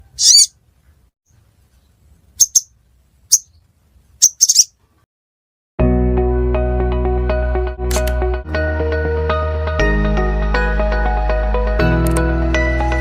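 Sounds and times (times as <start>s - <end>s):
high-pitched bird chirps: 0.0s - 0.6s, 2.4s - 2.7s, 3.3s - 3.6s, 4.2s - 4.8s
music with sustained tones: 5.8s - 13.0s.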